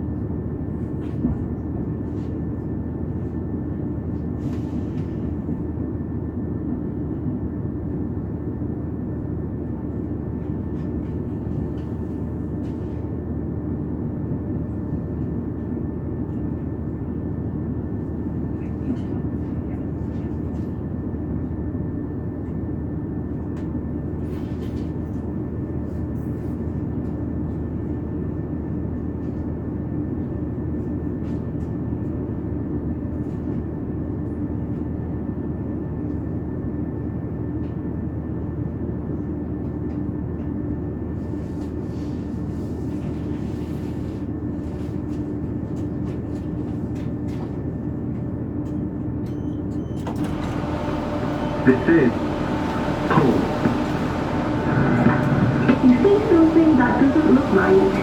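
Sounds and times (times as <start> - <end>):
train wheels rumbling on track: 50.0 - 58.0
low drive drone: 50.3 - 58.0.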